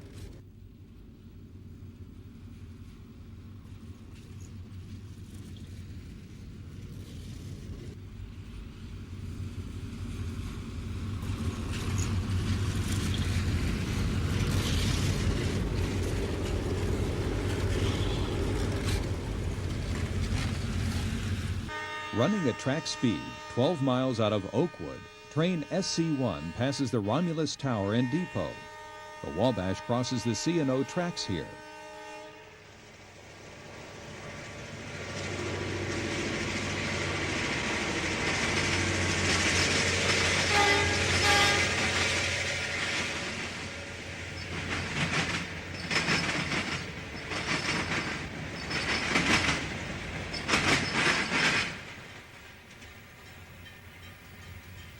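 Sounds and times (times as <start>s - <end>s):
locomotive engine drone: 0.0s - 31.7s, 32.5s - 54.9s
diesel freight train passing: 0.0s - 54.9s
wheels rumbling on rail: 0.0s - 54.9s
short train horn notes: 17.6s - 19.0s, 21.7s - 32.6s, 40.4s - 41.9s.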